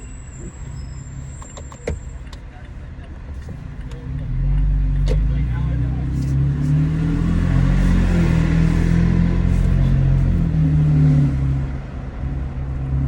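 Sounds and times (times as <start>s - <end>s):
truck engine accelerating: 3.8s - 13.0s.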